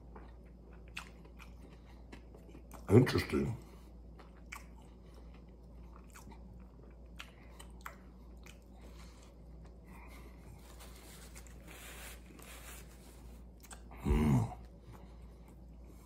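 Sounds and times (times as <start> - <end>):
close-up chewing: 0.0 - 11.7
paper napkin rustling: 10.5 - 13.5.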